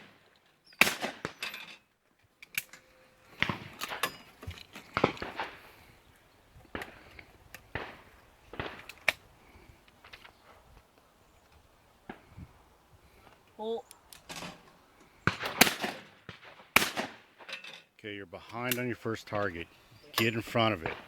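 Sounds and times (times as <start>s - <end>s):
sharp bangs and knocks: 3.4s - 5.7s, 20.2s - 21.0s.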